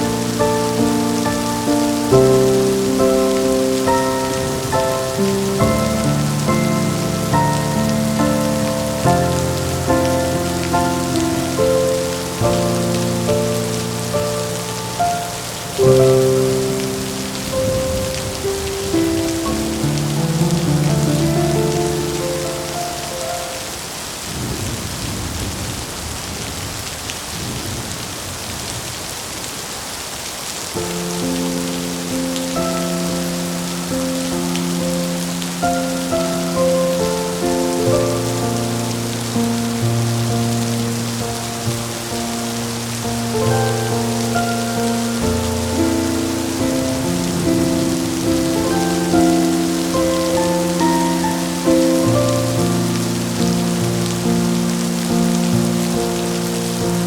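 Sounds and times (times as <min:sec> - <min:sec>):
soft sustained music notes: 0:00.0 - 0:23.7
slow calm music: 0:00.0 - 0:23.8, 0:30.8 - 0:57.0
rolling thunder rumble: 0:00.0 - 0:28.7, 0:32.6 - 0:57.0
steady rain falling: 0:00.0 - 0:57.0.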